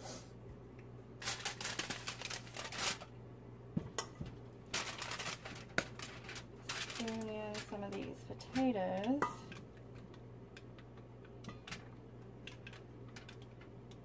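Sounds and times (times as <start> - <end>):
rustling and clattering: 4.2 - 8.2.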